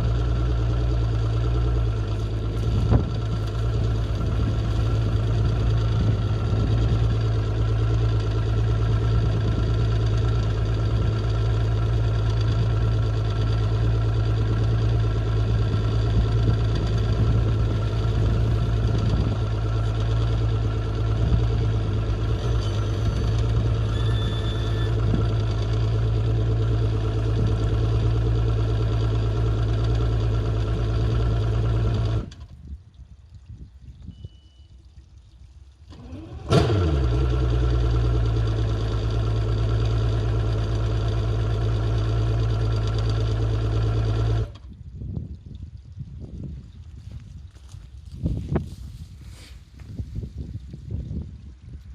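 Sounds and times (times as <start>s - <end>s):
outboard motor idling: 0.0s - 33.4s, 34.0s - 45.9s
short faint beep: 23.9s - 25.0s, 34.0s - 34.8s.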